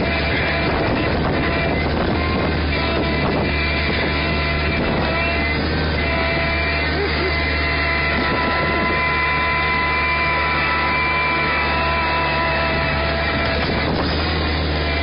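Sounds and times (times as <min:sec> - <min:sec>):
steady engine whine: 0:00.0 - 0:15.0
tractor engine droning: 0:00.0 - 0:15.0.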